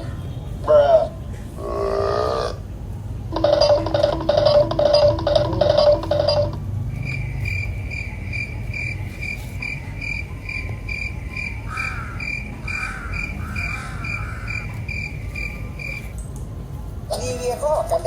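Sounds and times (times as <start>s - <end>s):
warbling call: 0.7s - 2.6s
cricket chirping: 3.4s - 16.1s.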